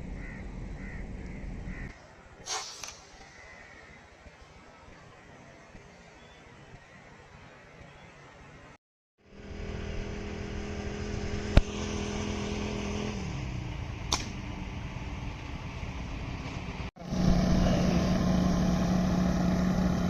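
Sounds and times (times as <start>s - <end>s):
sharp crack: 2.4s - 3.4s, 11.5s - 11.8s, 14.0s - 14.5s
vehicle engine running: 9.2s - 20.0s.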